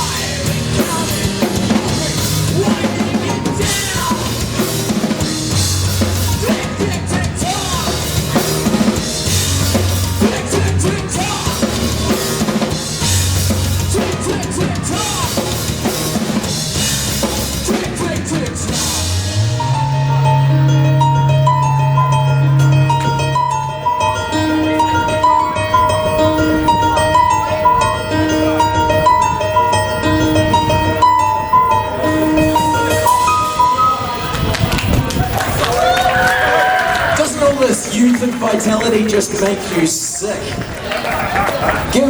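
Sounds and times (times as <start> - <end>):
held low bass note: 0.0 - 35.5
drum kit: 0.0 - 39.8
live rock band playing: 0.0 - 42.0
sustained keyboard-like tone: 19.6 - 35.6.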